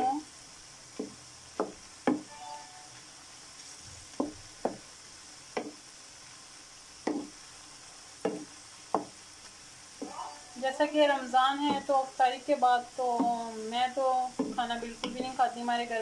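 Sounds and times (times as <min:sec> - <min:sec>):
vegetables sizzling in hot oil: 0:00.0 - 0:16.0
spatula knocking against pan: 0:00.9 - 0:02.3, 0:07.0 - 0:07.3, 0:08.2 - 0:09.2, 0:14.3 - 0:15.3.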